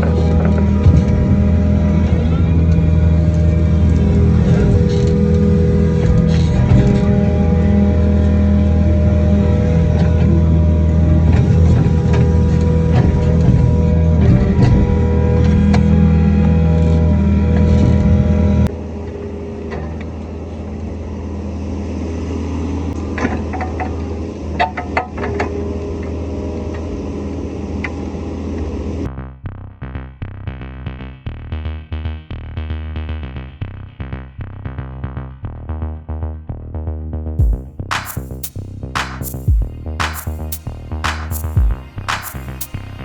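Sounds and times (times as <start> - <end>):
background music with steady beat: 37.4 - 43.0.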